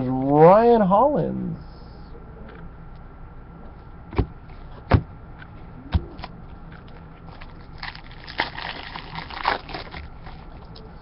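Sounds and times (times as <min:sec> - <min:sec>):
plastic packaging crinkling: 0:06.8 - 0:10.8.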